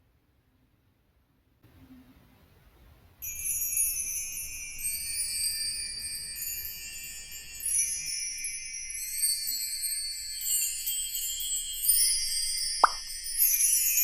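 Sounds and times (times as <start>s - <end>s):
tinkling chimes and bells music: 3.2s - 14.0s.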